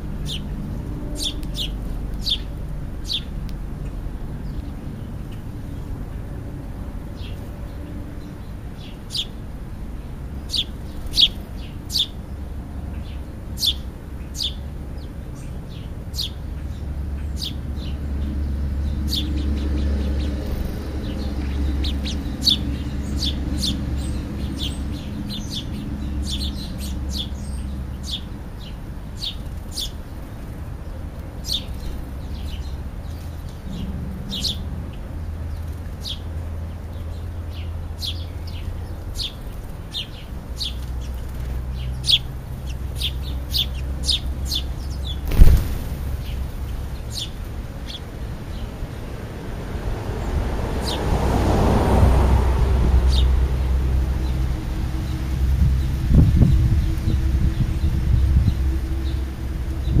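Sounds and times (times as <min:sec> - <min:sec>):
small birds chirping: 0:00.0 - 0:06.2, 0:07.2 - 0:49.0
steady low rumble: 0:39.6 - 0:48.6.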